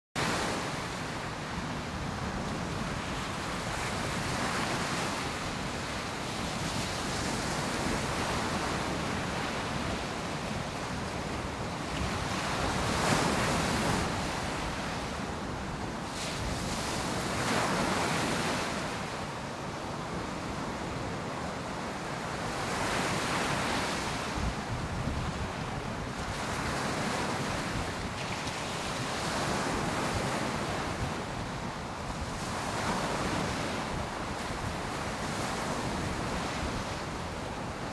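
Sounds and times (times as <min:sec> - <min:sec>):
wind on microphone: 0:22.9 - 0:37.9.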